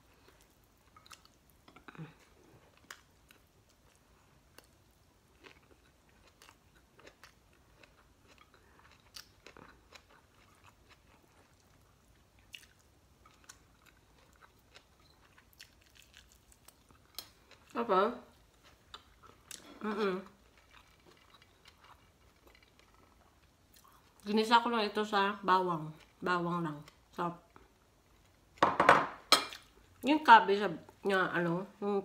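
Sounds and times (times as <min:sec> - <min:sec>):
chewing crispy fried fish: 0:00.0 - 0:24.3.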